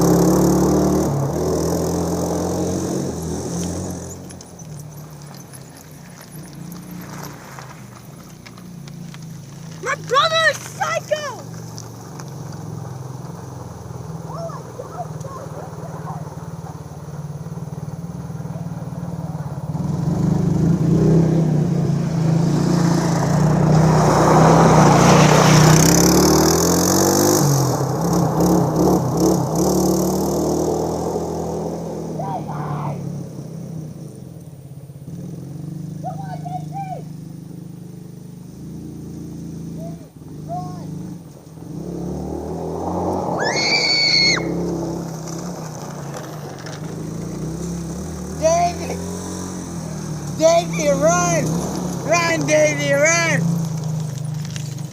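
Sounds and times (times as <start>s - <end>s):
vehicle engine running: 0.0s - 54.9s
high shrill squeal: 43.4s - 44.6s.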